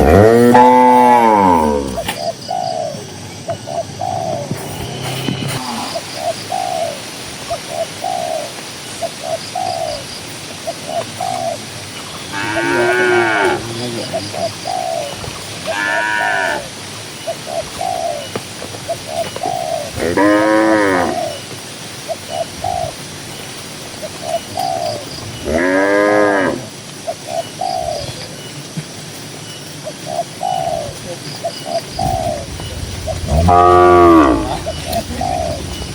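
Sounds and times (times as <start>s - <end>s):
cattle mooing: 0.0s - 2.0s, 12.3s - 13.9s, 15.7s - 16.7s, 20.0s - 21.2s, 33.1s - 35.8s.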